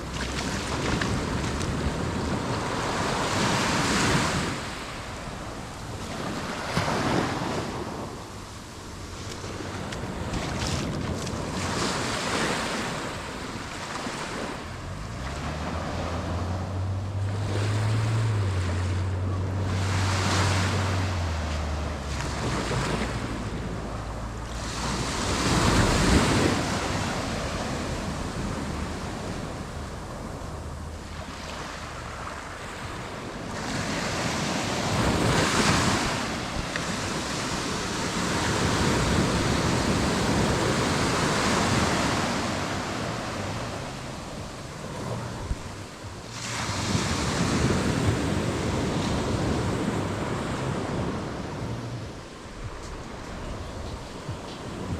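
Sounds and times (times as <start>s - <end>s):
surf washing onto beach: 0.0s - 54.9s
wind buffeting microphone: 0.0s - 54.9s
low motor hum: 14.6s - 33.4s.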